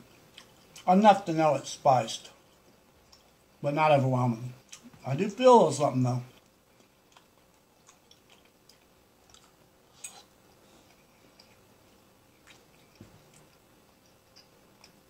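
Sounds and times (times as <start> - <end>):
faint chewing of food: 0.0 - 0.9, 2.2 - 3.6, 4.3 - 5.1, 6.2 - 15.0.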